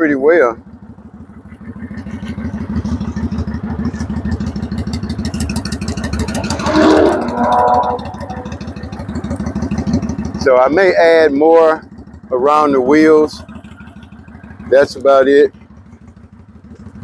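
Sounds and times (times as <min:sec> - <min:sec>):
motorcycle engine idling: 0:00.0 - 0:17.0
short high-pitched sounds: 0:06.2 - 0:09.0.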